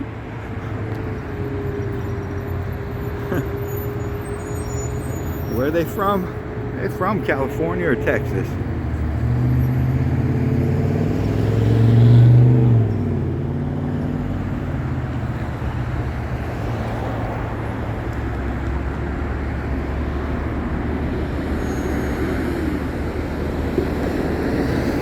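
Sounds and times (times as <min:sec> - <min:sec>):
rush of passing traffic: 0:00.0 - 0:25.0
vehicle engine passing close: 0:05.4 - 0:25.0.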